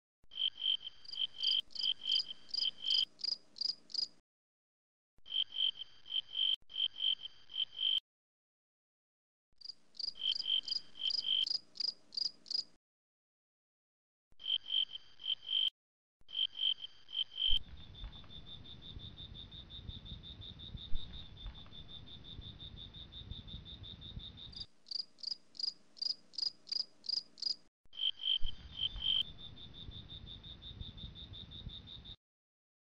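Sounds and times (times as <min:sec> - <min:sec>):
insects chirping: 0:00.3 - 0:04.1, 0:09.6 - 0:12.7, 0:16.3 - 0:32.2.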